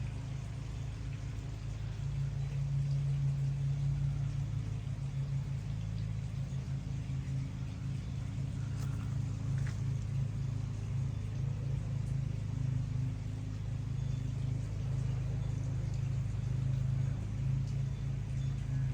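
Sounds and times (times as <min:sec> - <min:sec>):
engine running at low speed: 0:00.0 - 0:18.9
faint light ticks: 0:08.1 - 0:10.5, 0:15.0 - 0:18.9.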